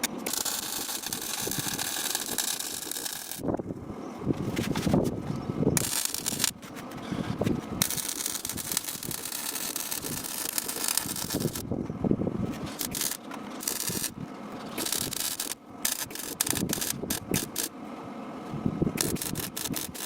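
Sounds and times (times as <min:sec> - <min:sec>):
welding arc crackling: 0:00.0 - 0:03.6, 0:05.8 - 0:06.8, 0:07.5 - 0:11.7, 0:12.5 - 0:17.7, 0:19.0 - 0:20.0
metal rattling and scraping: 0:00.2 - 0:03.5, 0:05.8 - 0:11.7, 0:12.5 - 0:17.7, 0:19.0 - 0:20.0.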